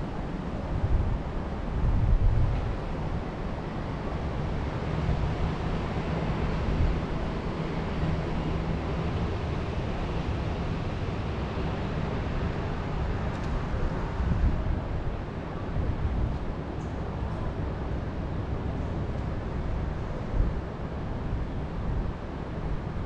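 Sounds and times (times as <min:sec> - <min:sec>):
wind buffeting microphone: 0:00.0 - 0:17.2
wind through forest: 0:00.0 - 0:23.0.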